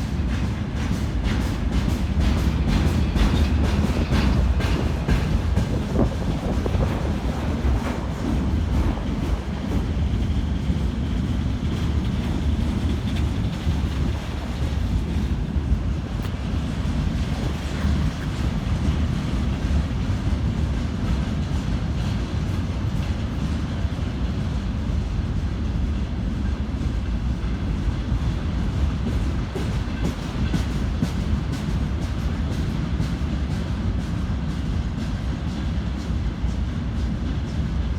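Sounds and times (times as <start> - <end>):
train wheels rumbling on rails: 0.0 - 37.9
wheels clickety-clack over joints: 0.0 - 37.9.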